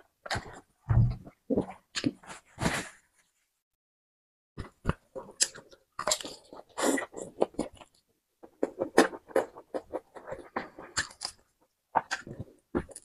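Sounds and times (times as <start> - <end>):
person biting and chewing: 4.8 - 13.0.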